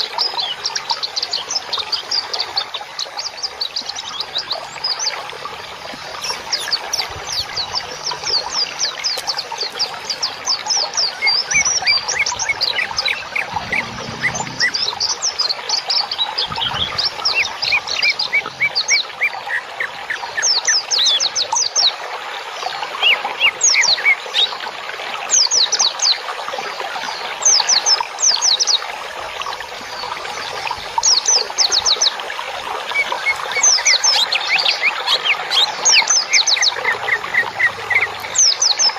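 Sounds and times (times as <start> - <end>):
songbirds chirping: 0.2 - 21.6
soft bird calls: 3.0 - 20.5.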